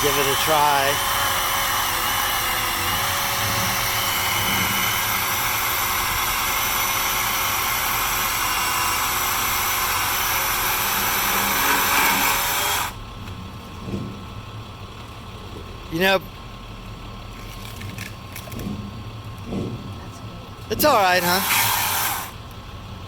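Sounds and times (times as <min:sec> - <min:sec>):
battery chainsaw whine: 0:00.0 - 0:13.0, 0:20.7 - 0:22.4.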